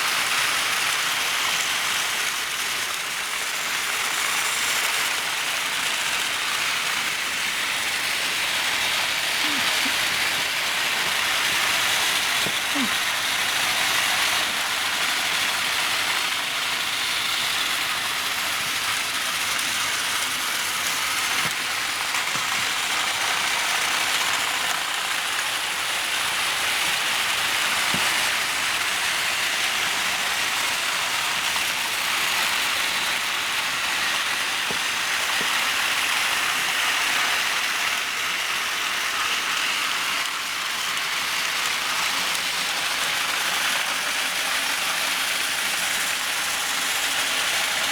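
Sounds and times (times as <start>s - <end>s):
toy trains whirring and clattering: 0.0s - 47.9s.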